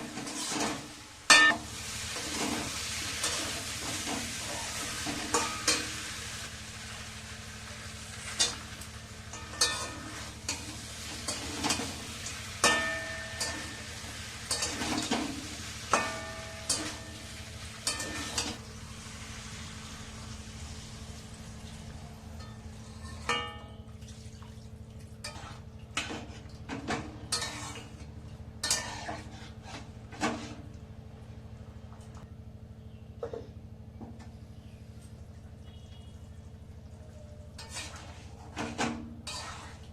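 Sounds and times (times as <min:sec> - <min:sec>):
frying sizzle: 0:00.0 - 0:23.5.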